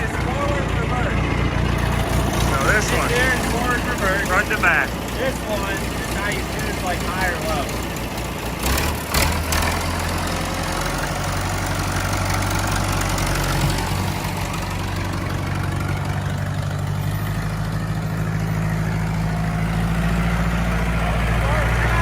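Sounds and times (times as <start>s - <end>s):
tractor diesel engine idling: 0.0s - 22.0s.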